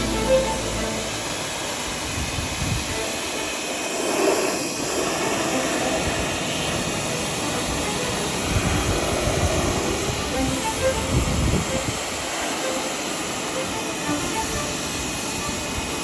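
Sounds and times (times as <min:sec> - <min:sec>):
pressure washer spraying: 0:02.8 - 0:11.1.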